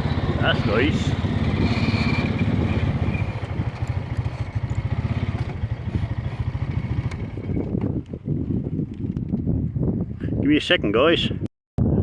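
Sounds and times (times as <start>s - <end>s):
small engine running: 0.0s - 8.7s.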